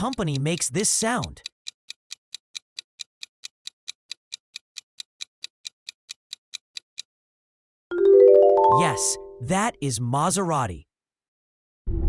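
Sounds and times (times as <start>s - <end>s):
clock ticking: 0.0s - 7.1s.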